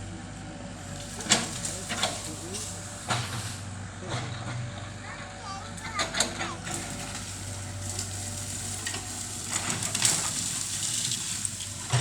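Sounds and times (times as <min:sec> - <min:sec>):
machine engine hum: 0:00.0 - 0:12.0
bamboo crackling and rustling: 0:00.8 - 0:03.8, 0:05.8 - 0:12.0.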